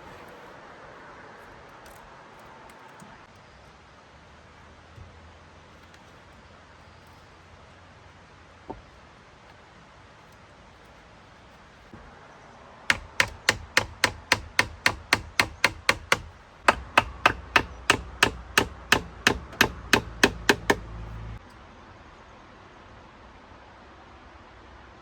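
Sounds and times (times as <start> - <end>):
hand tool striking: 12.9 - 21.0.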